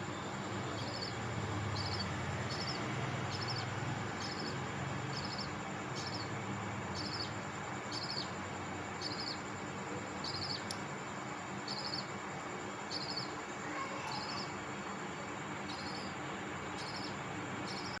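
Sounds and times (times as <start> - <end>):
background hiss: 0.0 - 18.0
budgerigar chirping: 1.8 - 3.6, 4.2 - 6.3, 7.0 - 7.3, 10.2 - 10.6, 11.7 - 12.1.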